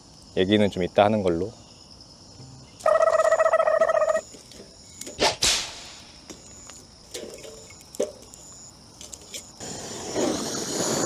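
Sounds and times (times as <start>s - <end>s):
night insects chirping: 0.0s - 11.0s
pulsed buzzing call: 2.4s - 4.2s.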